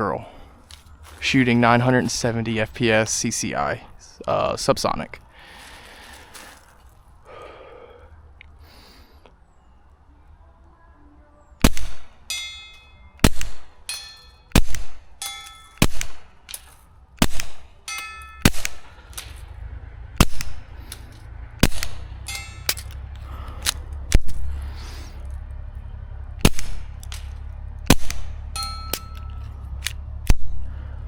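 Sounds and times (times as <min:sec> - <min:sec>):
suppressed pistol shots: 0:11.6 - 0:12.1, 0:13.2 - 0:13.7, 0:14.5 - 0:15.0, 0:15.8 - 0:16.3, 0:17.2 - 0:17.7, 0:18.4 - 0:19.4, 0:20.2 - 0:21.0, 0:21.6 - 0:23.0, 0:26.4 - 0:30.6
bullet clanging on steel plate: 0:12.2 - 0:19.4, 0:20.2 - 0:24.4, 0:26.4 - 0:30.0.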